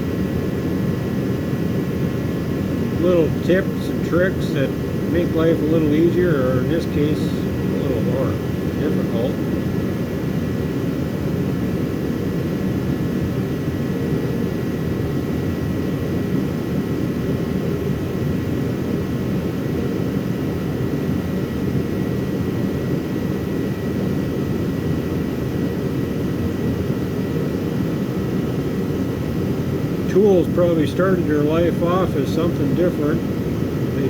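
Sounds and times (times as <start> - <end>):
faint high whine: 0.0 - 15.3, 26.7 - 34.0
heater rushing hum: 0.0 - 34.0.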